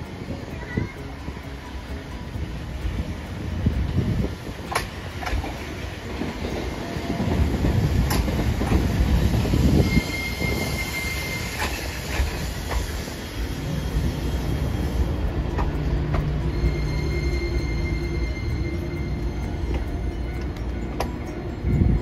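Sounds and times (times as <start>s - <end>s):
tram rumbling past: 0.0s - 22.0s
wheels clacking over rail joints: 0.0s - 22.0s
high-pitched whine: 12.9s - 22.0s.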